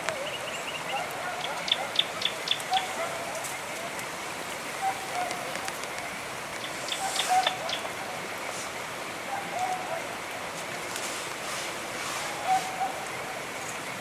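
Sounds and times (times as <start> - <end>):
steady rain falling: 0.0 - 14.0
bird cooing: 4.8 - 5.8, 6.9 - 8.2, 12.2 - 13.4.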